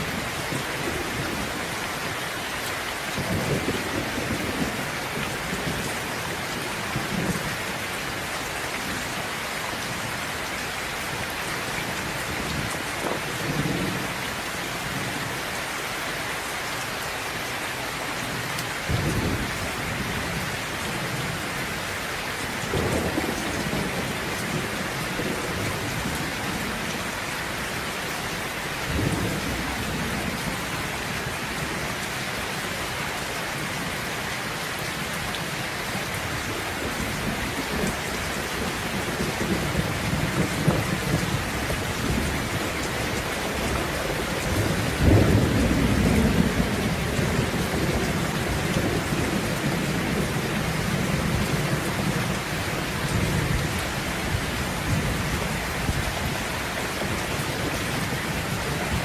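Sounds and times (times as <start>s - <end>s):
rain falling: 0.0s - 59.0s
thunder rumbling: 3.2s - 7.9s, 18.2s - 21.5s, 22.6s - 27.2s, 36.2s - 56.4s.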